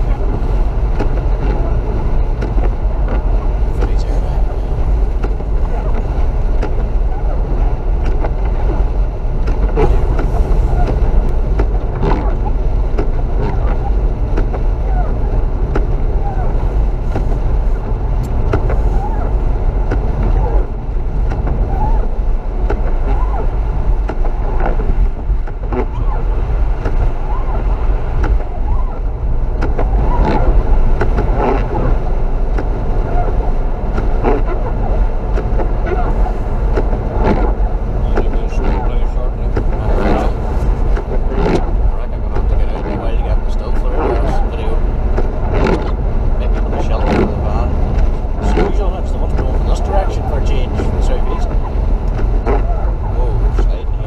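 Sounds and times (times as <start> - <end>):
blizzard wind buffeting microphone: 0.0 - 54.0.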